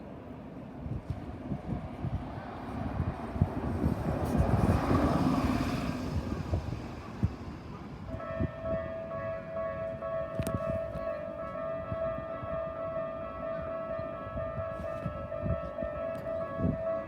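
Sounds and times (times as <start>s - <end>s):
train rumbling past: 0.0s - 17.0s
crossing warning bell: 7.7s - 17.0s.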